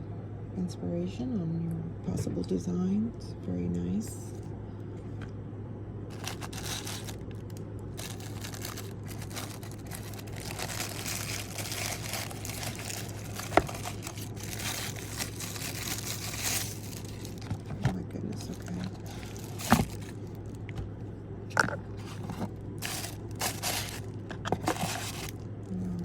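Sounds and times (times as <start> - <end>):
low steady hum: 0.0 - 26.0
plastic packaging crinkling: 6.1 - 20.8, 21.5 - 25.4.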